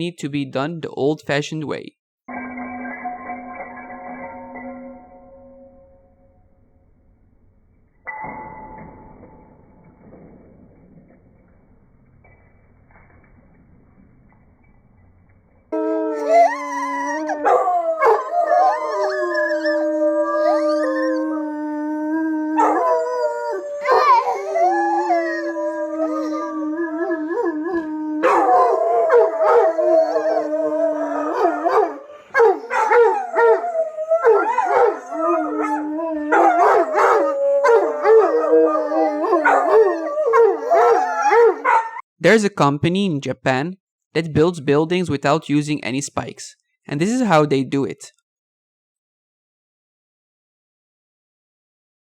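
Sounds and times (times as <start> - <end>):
dogs howling: 15.8 - 42.0.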